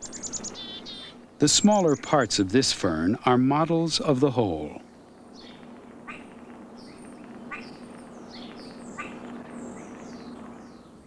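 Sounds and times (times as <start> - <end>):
high bird chirps: 0.0 - 2.2
downward-sweeping bird calls: 0.0 - 11.0
faint steady hum: 0.0 - 11.0.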